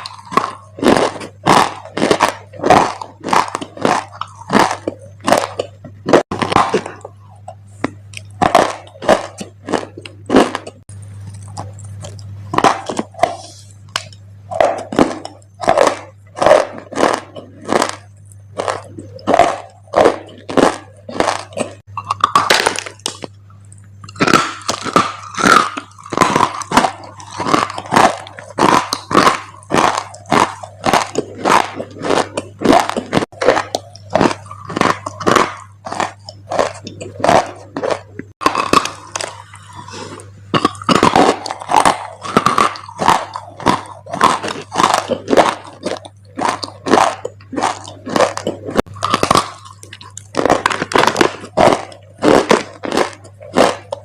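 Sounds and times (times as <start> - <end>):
dry clay crunching: 0.0 - 23.4, 24.1 - 54.0
faint low hum: 0.0 - 54.0.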